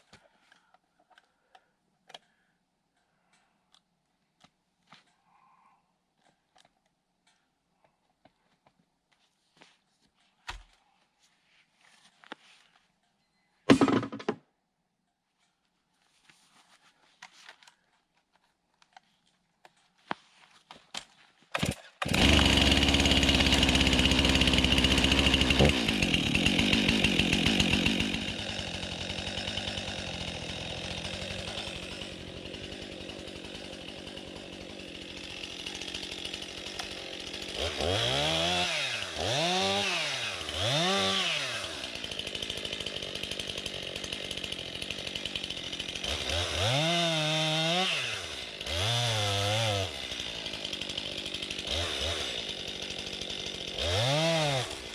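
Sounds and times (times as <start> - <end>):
chainsaw engine revving: 21.6 - 54.9.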